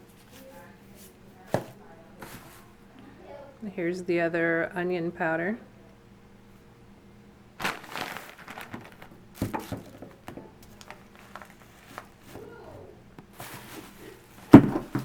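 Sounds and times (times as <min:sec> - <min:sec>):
plastic bag crinkling: 0:07.6 - 0:12.6.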